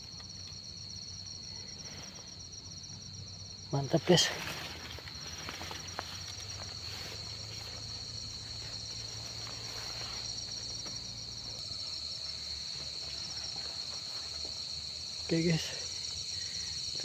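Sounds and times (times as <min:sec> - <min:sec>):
cricket chirping fast: 0:00.0 - 0:17.0
cricket trilling: 0:00.0 - 0:17.0.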